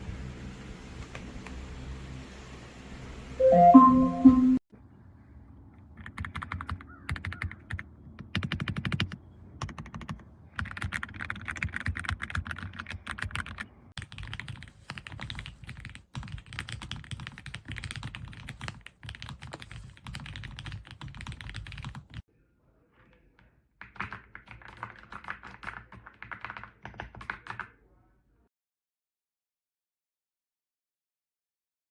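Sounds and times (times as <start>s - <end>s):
mechanical keyboard typing: 6.0s - 22.2s, 23.8s - 27.8s.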